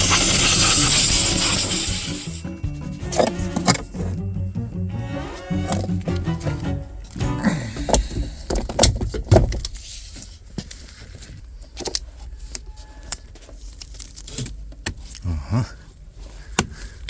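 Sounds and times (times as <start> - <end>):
clicks and knocks of parts handled: 7.8 - 15.2.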